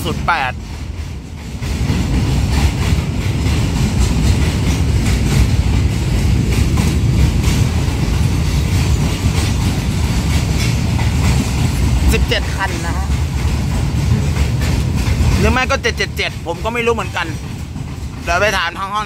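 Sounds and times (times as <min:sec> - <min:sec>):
freight train rumbling past: 0:00.0 - 0:19.0
wheels clacking over rail joints: 0:00.0 - 0:19.0.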